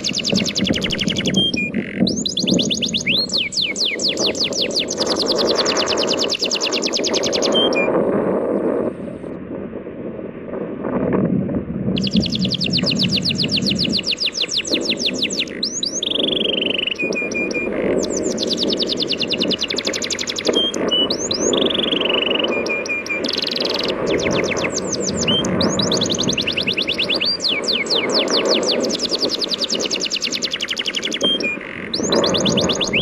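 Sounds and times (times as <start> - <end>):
songbird trilling and whistling: 0.0 - 8.0, 12.0 - 33.0.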